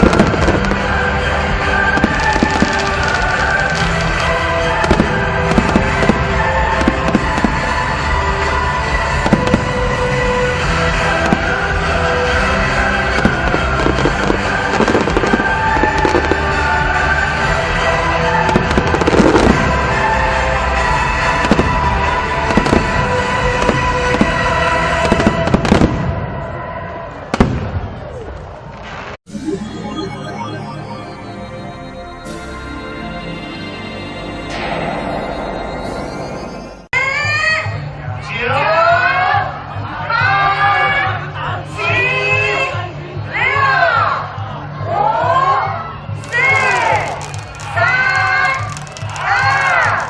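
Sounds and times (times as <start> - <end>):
music playing: 0.0 - 25.2, 29.2 - 38.1
fireworks bangs and crackles: 0.0 - 26.6, 27.2 - 31.2, 46.2 - 50.0.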